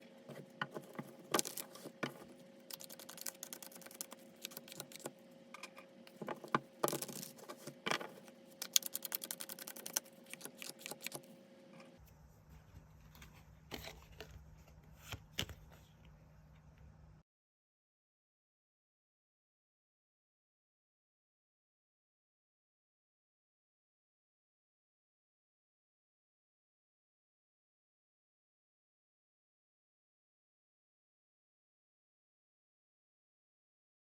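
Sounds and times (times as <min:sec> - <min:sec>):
faint steady hum: 0:00.0 - 0:17.2
cards being shuffled: 0:00.8 - 0:05.1, 0:06.5 - 0:11.3
snapping cards: 0:02.7 - 0:05.1, 0:08.6 - 0:11.2.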